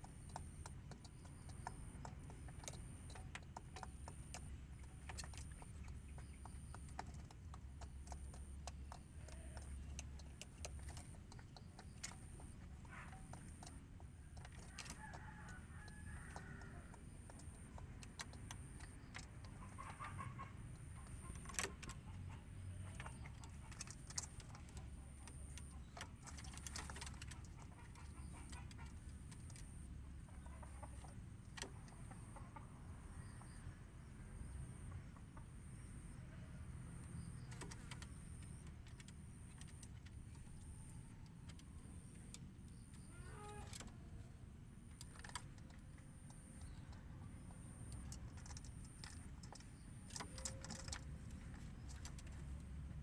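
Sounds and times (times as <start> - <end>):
sharp clicks and taps: 0.0 - 29.8
chicken clucking: 0.0 - 33.8, 37.0 - 44.3, 44.9 - 53.0.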